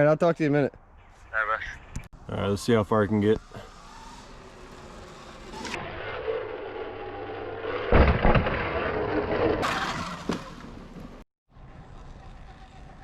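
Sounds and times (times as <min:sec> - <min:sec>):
electric dirt bike riding: 0:02.9 - 0:13.0
loud thump: 0:07.9 - 0:08.8.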